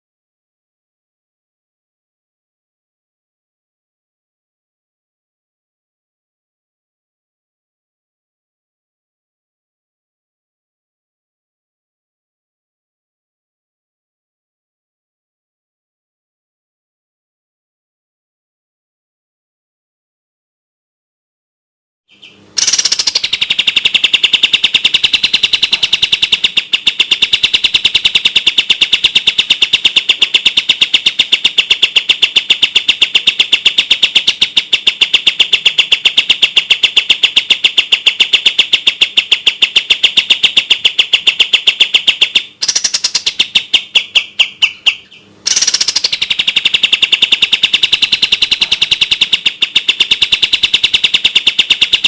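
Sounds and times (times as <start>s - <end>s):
bird singing fast trill: 22.1s - 52.0s.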